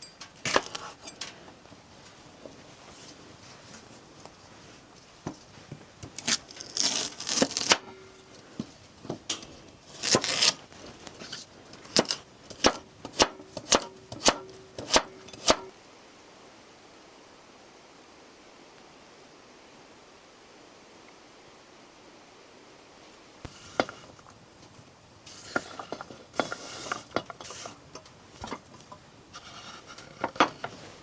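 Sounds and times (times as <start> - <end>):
scraping and rustling: 0.0 - 12.7, 23.5 - 31.0
sharp chopping strikes: 12.0 - 15.7.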